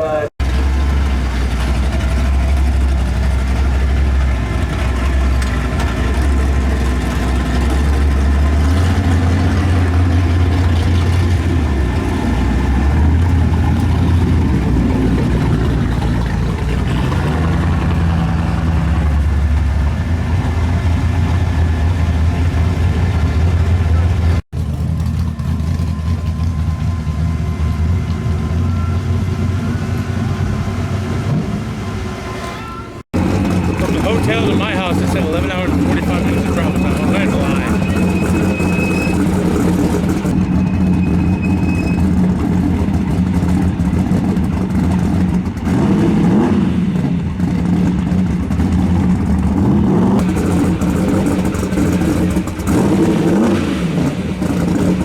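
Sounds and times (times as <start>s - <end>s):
race car engine idling and revving: 0.0s - 55.0s.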